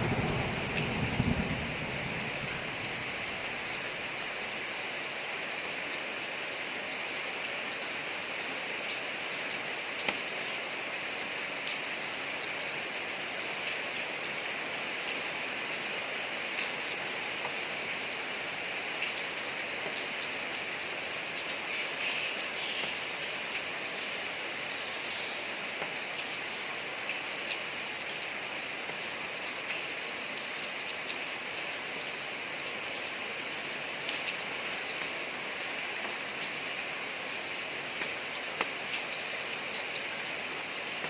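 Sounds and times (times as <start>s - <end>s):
raindrop ticks: 0.0s - 3.8s, 10.0s - 10.3s, 38.0s - 39.9s
rain falling on a street: 0.0s - 41.0s.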